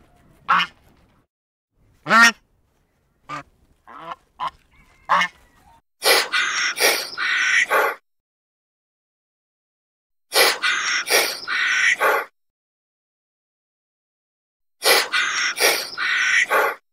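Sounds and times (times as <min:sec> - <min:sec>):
goose honking: 0:00.5 - 0:00.8, 0:02.0 - 0:02.4, 0:03.3 - 0:05.5.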